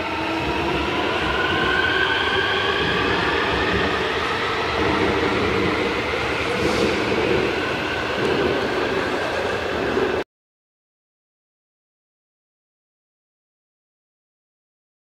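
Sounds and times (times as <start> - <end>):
train wheels rumbling on rails: 0.0 - 10.2.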